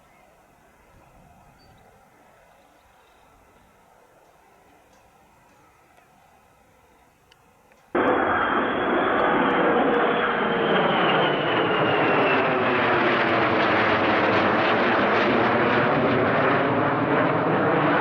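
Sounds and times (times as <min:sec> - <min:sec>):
fighter jet engine roar: 0:07.9 - 0:18.0
high jet whine: 0:07.9 - 0:18.0.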